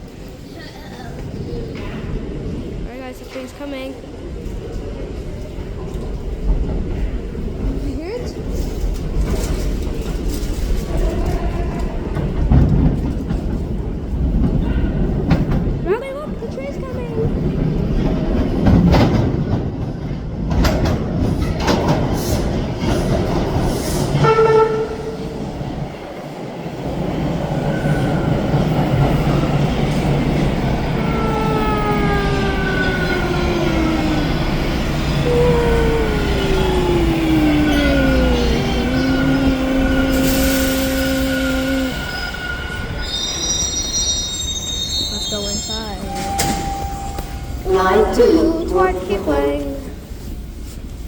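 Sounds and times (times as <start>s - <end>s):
subway train rumble: 0.0s - 51.0s
traction motors whining: 30.0s - 48.3s.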